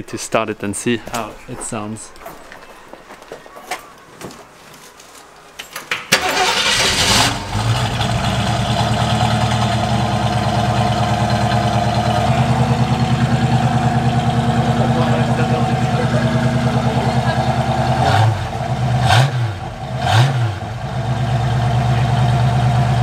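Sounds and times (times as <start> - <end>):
car engine starting and idling: 6.1 - 23.0.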